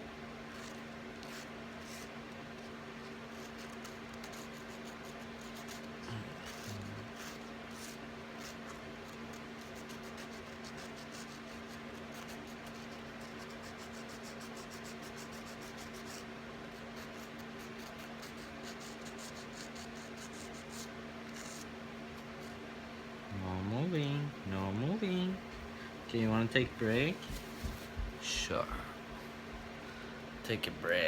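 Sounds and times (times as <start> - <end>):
electrical hum: 0.0 - 31.0
nail file scratching claws: 0.5 - 22.3.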